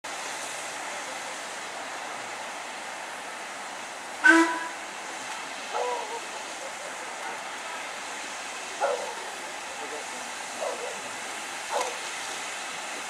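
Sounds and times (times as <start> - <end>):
steam hissing: 0.1 - 13.0
steam locomotive whistle: 4.2 - 4.8.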